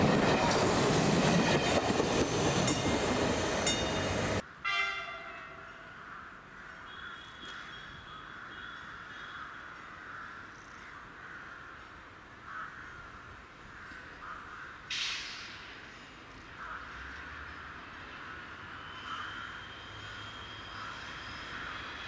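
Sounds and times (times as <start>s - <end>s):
train noise: 0.0s - 6.5s, 14.9s - 22.0s
quiet outdoor background: 0.0s - 22.0s
bird call: 18.7s - 22.0s.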